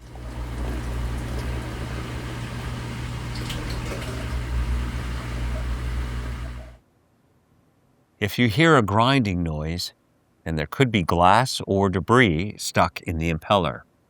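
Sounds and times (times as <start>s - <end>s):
drain pump motor hum: 0.0s - 6.8s
water gurgling and rushing: 0.0s - 6.8s.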